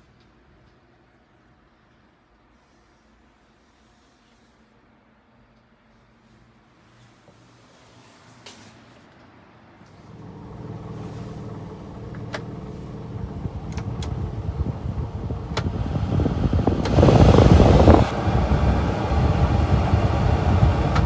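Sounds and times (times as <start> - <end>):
small truck engine running: 9.9 - 21.0
rushing engine surge: 10.1 - 21.0.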